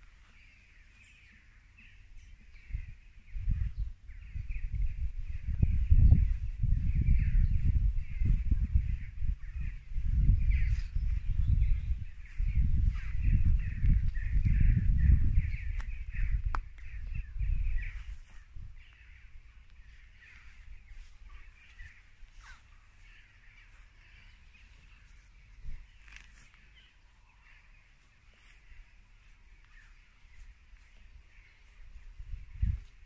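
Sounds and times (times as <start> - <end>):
birds chattering: 0.0 - 33.0
microphone rumble: 2.4 - 23.1, 31.3 - 33.0.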